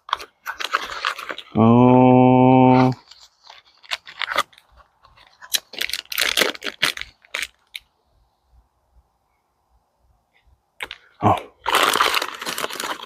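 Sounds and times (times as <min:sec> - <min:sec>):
plastic packaging crinkling and tearing: 0:00.0 - 0:01.6, 0:02.7 - 0:07.9, 0:10.8 - 0:13.0
faint steady hum: 0:00.0 - 0:12.4.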